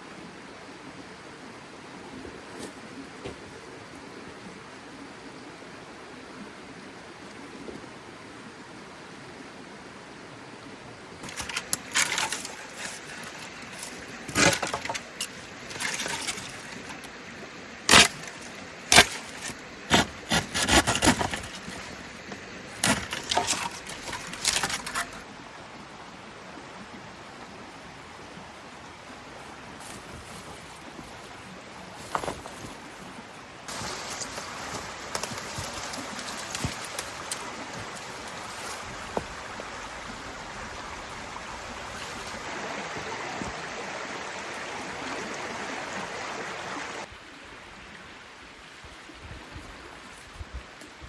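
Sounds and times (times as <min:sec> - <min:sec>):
rain hissing: 0:33.7 - 0:47.1.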